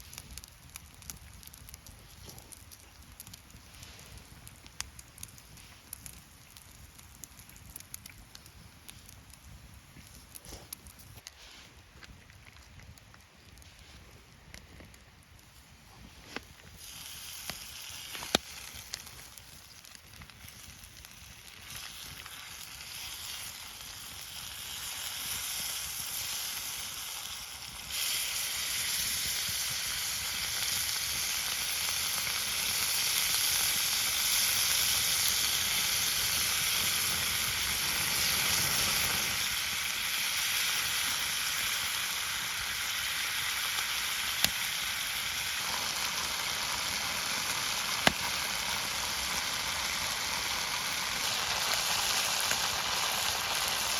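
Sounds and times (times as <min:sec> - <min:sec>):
food sizzling in a pan: 0:16.8 - 0:53.9.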